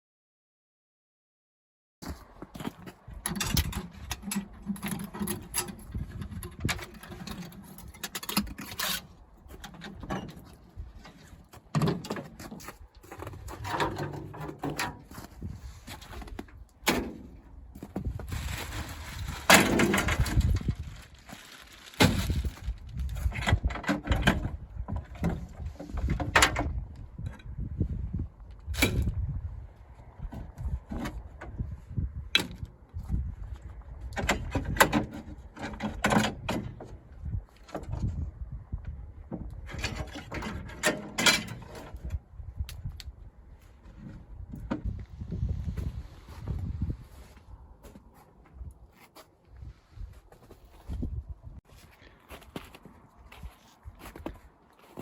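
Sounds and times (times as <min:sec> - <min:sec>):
knocks clunks and rattles: 0:02.5 - 0:20.9, 0:22.0 - 0:27.5, 0:34.2 - 0:42.2, 0:43.8 - 0:45.1.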